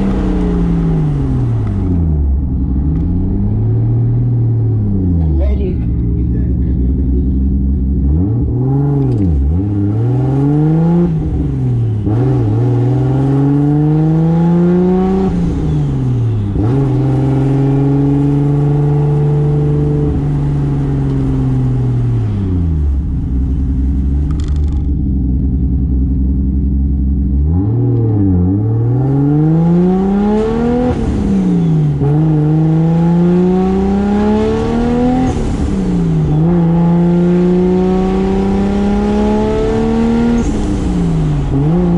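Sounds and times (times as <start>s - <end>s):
car engine accelerating through gears: 0.0s - 41.9s.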